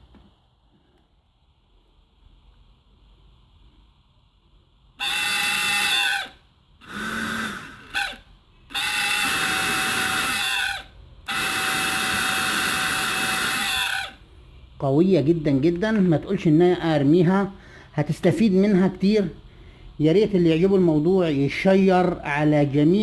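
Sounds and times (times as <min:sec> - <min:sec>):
small electric motor whining: 0:05.0 - 0:14.2.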